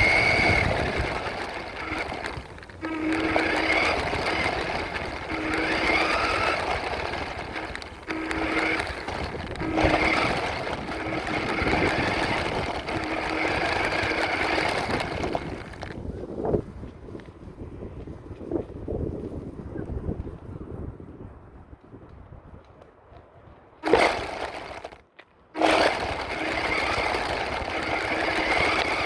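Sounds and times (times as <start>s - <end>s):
electric motor and drivetrain whirring: 0.0s - 17.4s, 23.8s - 25.0s, 25.6s - 29.0s.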